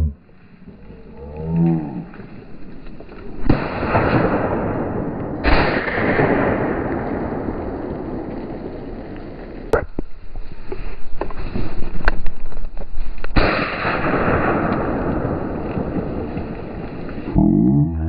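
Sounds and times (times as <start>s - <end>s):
shotgun shots: 3.5s - 7.5s, 13.4s - 16.0s.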